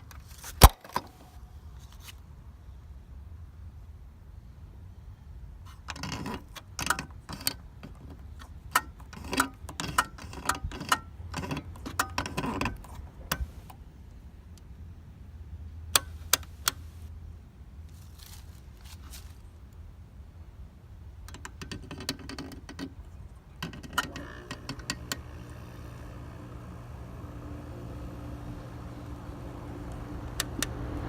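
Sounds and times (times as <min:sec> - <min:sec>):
low steady hum: 0:08.0 - 0:31.0
handling clicks and rattles: 0:21.2 - 0:30.7.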